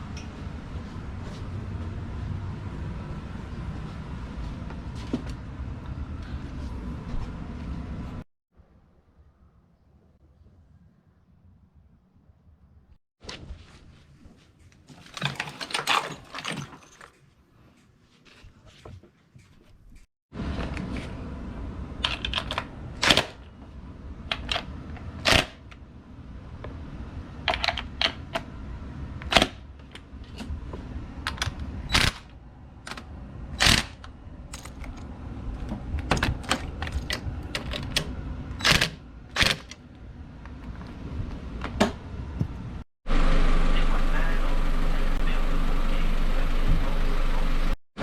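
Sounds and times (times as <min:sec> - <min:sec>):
low hum: 0:28.3 - 0:47.8.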